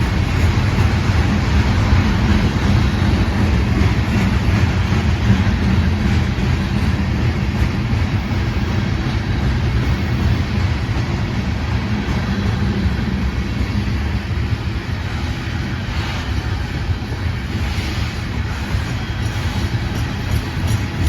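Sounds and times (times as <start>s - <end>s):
freight train rumbling past: 0.0s - 21.0s.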